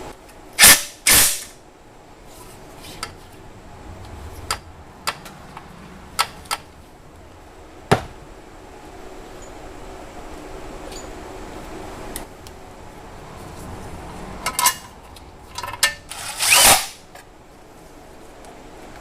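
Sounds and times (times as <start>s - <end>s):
sharp clicks and knocks: 4.0s - 6.8s
tools and metal parts clattering: 14.4s - 17.0s.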